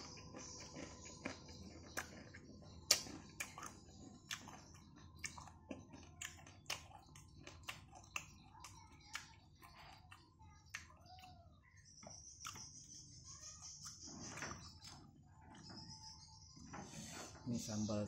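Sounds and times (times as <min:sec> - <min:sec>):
person chewing crunchy food: 0:00.0 - 0:11.3, 0:12.4 - 0:12.9.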